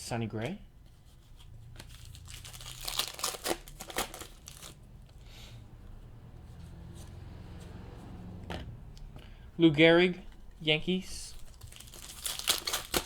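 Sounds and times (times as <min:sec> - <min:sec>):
card packaging crinkling: 0:01.8 - 0:04.9, 0:11.3 - 0:13.0
cards being handled: 0:11.3 - 0:13.0.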